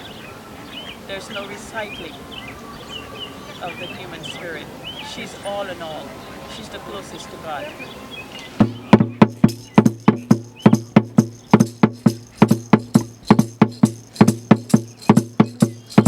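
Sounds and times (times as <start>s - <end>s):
drum beaten in steady rhythm: 8.6s - 16.0s.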